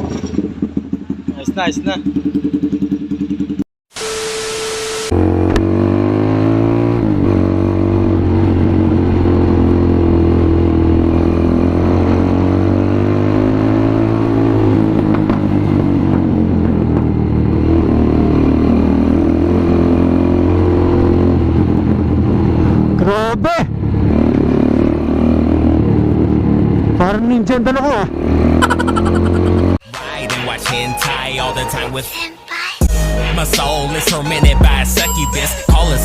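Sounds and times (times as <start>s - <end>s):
motorcycle engine running: 0.0s - 3.6s, 13.4s - 19.3s.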